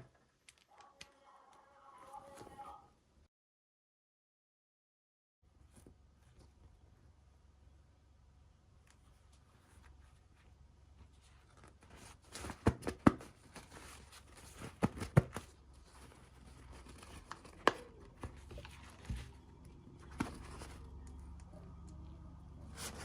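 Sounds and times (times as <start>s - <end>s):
packaging crinkling: 11.3s - 21.1s.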